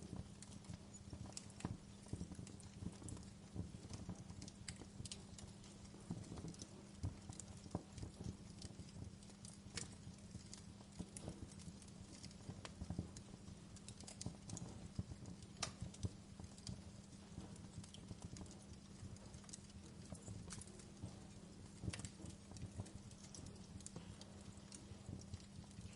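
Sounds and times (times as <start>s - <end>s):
low background noise: 0.0s - 25.9s
wood fire crackling: 0.0s - 25.9s.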